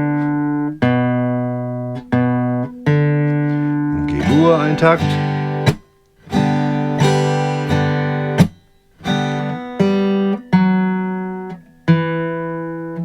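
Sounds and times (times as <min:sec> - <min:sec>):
acoustic guitar chords strummed: 0:03.9 - 0:10.3.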